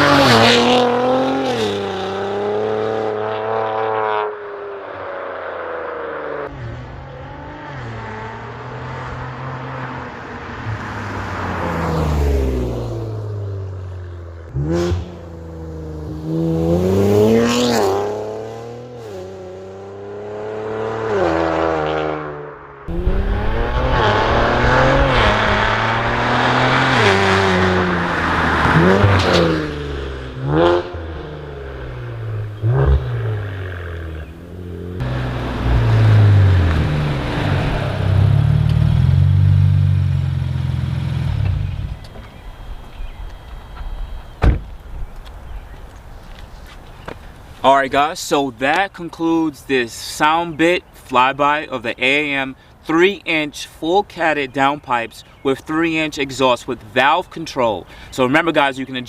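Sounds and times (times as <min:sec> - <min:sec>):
car exhaust fly-by: 0:06.5 - 0:45.7.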